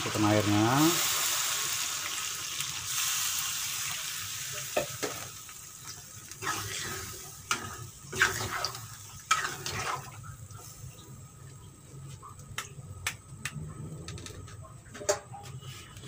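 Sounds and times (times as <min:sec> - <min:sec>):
liquid sizzling in a hot pan: 0:00.0 - 0:12.5
spatula scraping a pan: 0:06.4 - 0:10.2.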